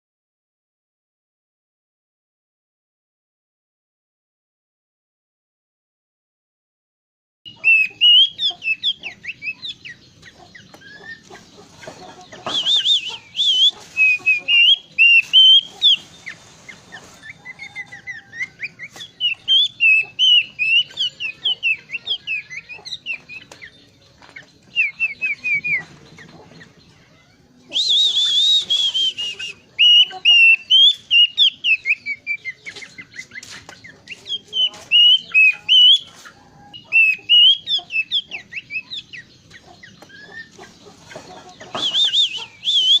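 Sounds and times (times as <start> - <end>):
bird singing whistled notes: 7.5 - 10.0, 12.4 - 16.4, 17.2 - 24.0, 24.6 - 26.0, 27.6 - 36.1, 36.7 - 39.3, 41.6 - 43.0.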